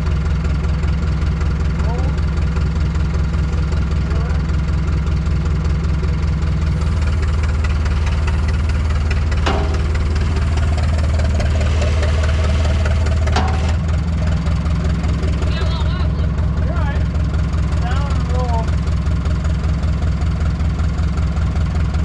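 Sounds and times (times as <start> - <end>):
engine humming: 0.0 - 22.0
sharp metal clanks: 9.3 - 10.6.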